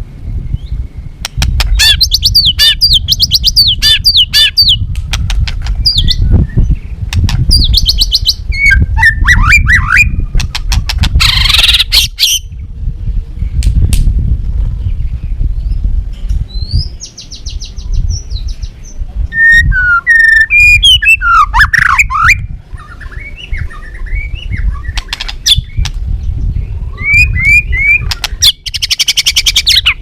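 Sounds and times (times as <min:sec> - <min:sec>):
bird singing: 0:00.4 - 0:04.9, 0:05.8 - 0:10.5, 0:16.5 - 0:30.0
low rumble: 0:12.4 - 0:19.8, 0:22.4 - 0:28.4.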